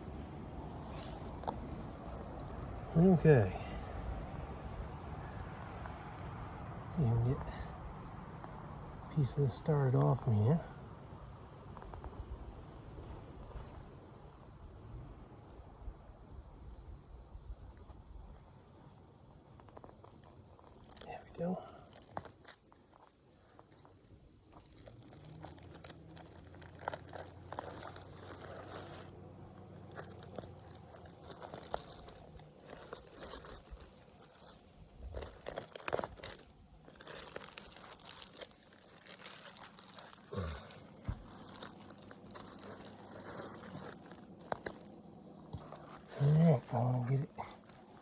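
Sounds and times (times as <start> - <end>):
insect chirring: 0.0 - 48.0
roofing material crinkling: 0.5 - 3.2, 19.5 - 48.0.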